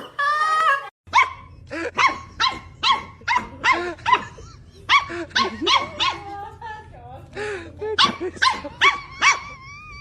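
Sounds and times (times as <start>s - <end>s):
dog barking: 1.1s - 6.3s, 8.0s - 9.5s.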